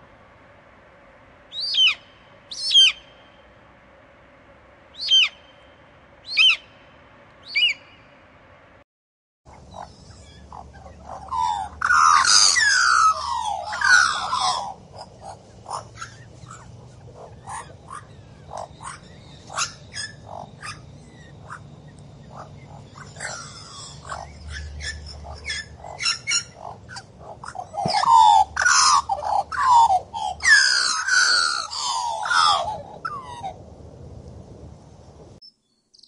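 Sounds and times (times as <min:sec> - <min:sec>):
eagle high falling calls: 0:01.5 - 0:03.5, 0:04.9 - 0:08.1, 0:09.5 - 0:33.6
magpie chattering: 0:09.7 - 0:21.6, 0:22.3 - 0:33.3.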